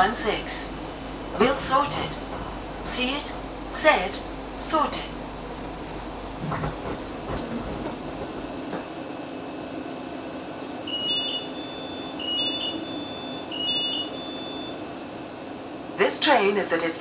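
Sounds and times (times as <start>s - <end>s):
two-tone door warning beeps: 0.0s - 7.5s, 10.8s - 15.2s
steady electric hum: 0.0s - 8.3s
train running rumble: 0.0s - 17.0s.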